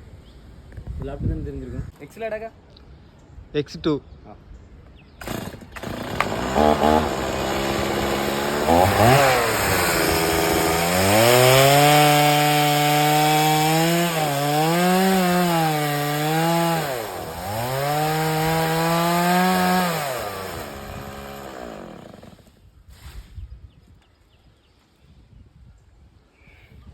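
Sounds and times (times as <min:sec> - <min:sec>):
chainsaw cutting wood: 0:05.2 - 0:22.6.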